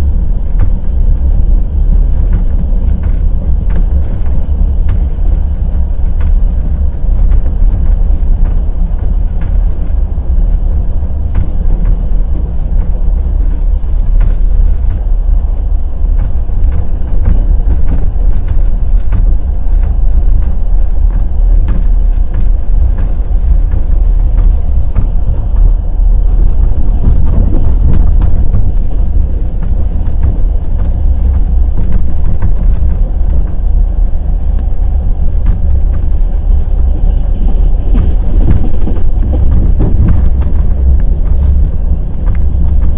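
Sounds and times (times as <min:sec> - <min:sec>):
train rumble: 0:00.0 - 0:42.9
train wheels clacking on rails: 0:00.0 - 0:42.9.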